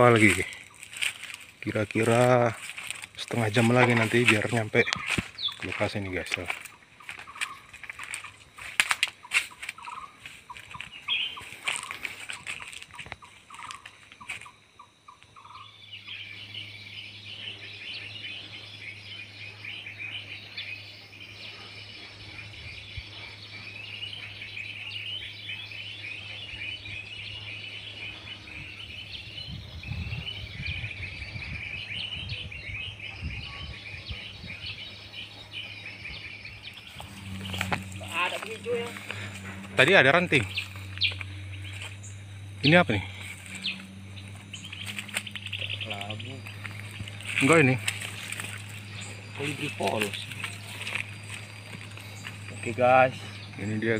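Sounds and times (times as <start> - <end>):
birds chirping: 0.0 - 53.9
steady low hum: 0.0 - 53.9.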